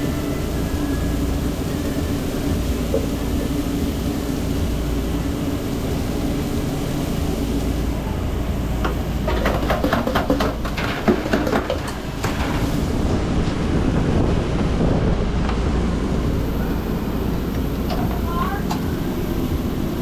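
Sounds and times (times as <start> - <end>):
kitchen equipment drone: 0.0 - 14.7, 15.4 - 20.0
cooking knocks and scrapes: 9.2 - 13.1.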